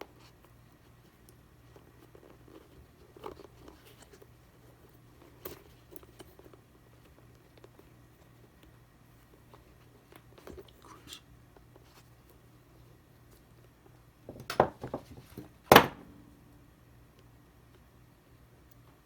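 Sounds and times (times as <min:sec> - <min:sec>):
plastic parts rustling and tapping: 0:14.3 - 0:16.0.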